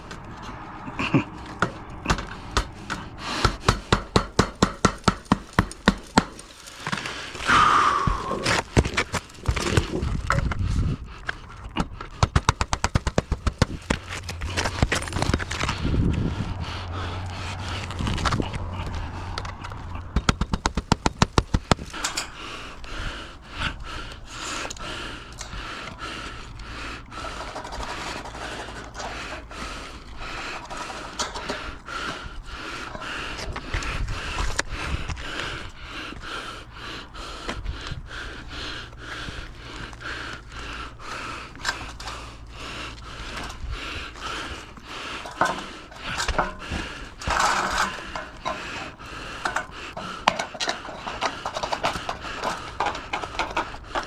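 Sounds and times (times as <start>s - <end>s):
knocks and taps on metal: 1.6s - 6.4s
fast sharp clicks: 11.8s - 15.6s.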